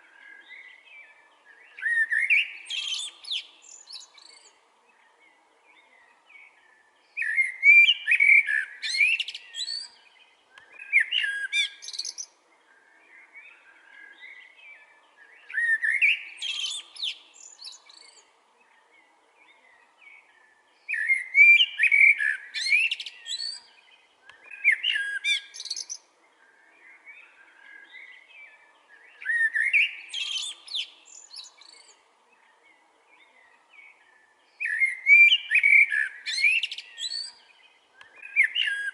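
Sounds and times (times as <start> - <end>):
blackbird singing: 0.0 - 38.9
soft bird twittering: 0.0 - 38.9.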